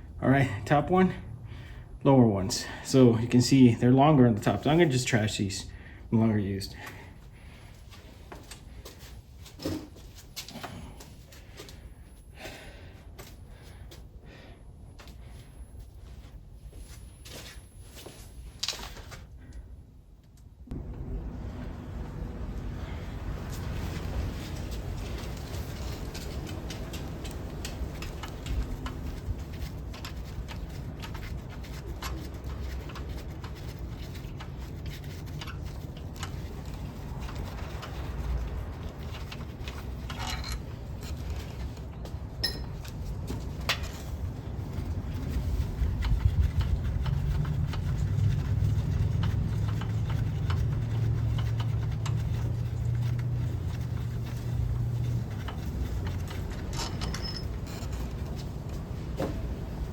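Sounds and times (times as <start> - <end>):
low steady hum: 0.0 - 59.9
hand tools clicking and clinking: 39.2 - 41.4, 42.4 - 43.9, 55.4 - 58.4.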